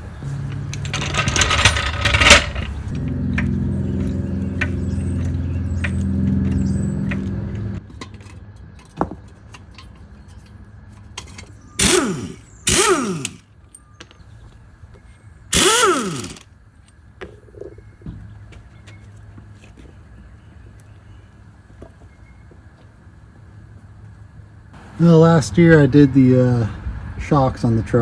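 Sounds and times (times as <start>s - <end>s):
impact wrench bursts: 11.8s - 13.4s, 15.5s - 16.5s.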